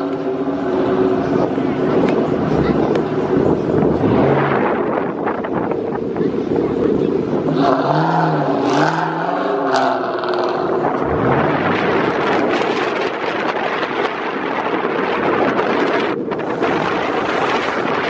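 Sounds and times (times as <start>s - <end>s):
car engine revving: 0.0s - 6.1s, 7.0s - 18.0s
road noise: 0.0s - 18.0s
wind noise: 0.0s - 18.0s.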